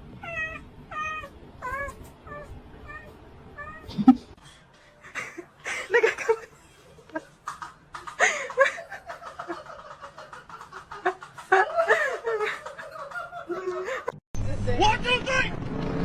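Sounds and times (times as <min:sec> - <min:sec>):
person laughing: 0:05.1 - 0:14.2.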